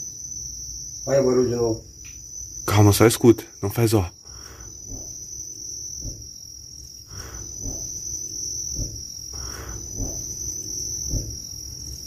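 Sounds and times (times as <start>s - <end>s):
crickets chirring: 0.0s - 12.0s
soft low thuds: 4.8s - 11.8s.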